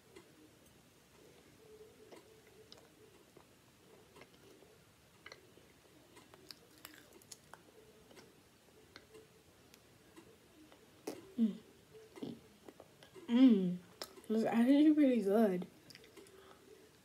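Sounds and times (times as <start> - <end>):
faint chewing: 2.0 - 14.3, 15.8 - 17.0
small mouth clicks: 13.9 - 14.3.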